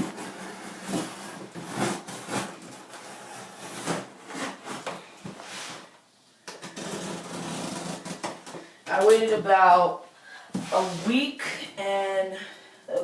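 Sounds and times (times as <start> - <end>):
knife cutting packing tape: 0.0 - 4.9
cardboard scraping and rustling: 0.0 - 5.9.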